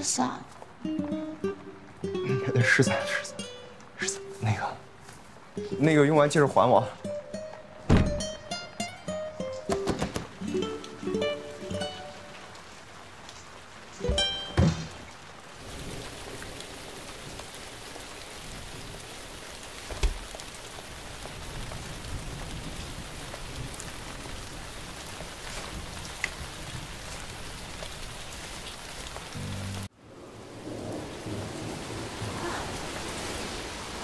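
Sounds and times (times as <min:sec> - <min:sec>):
rain falling: 0:00.0 - 0:34.0
dull thump: 0:07.9 - 0:08.3.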